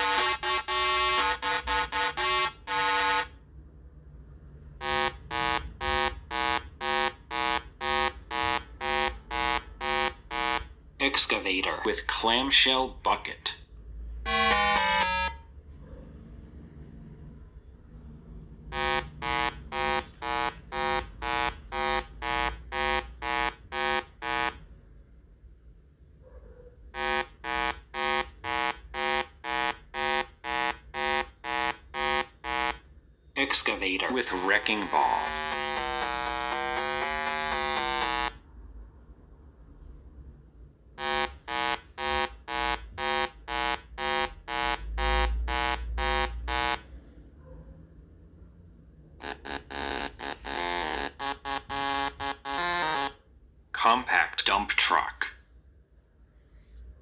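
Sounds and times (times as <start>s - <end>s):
electronic buzzer beeping: 0.0s - 3.3s, 4.8s - 10.7s, 14.2s - 15.5s, 18.7s - 24.6s, 27.0s - 38.4s, 41.0s - 46.8s, 49.2s - 53.2s.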